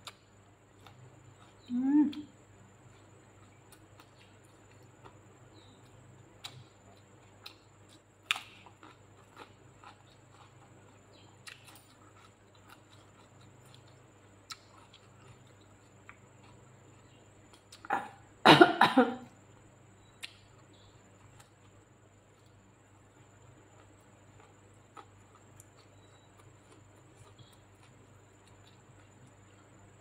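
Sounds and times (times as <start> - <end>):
person chewing food: 0.0 - 17.9, 19.5 - 30.0.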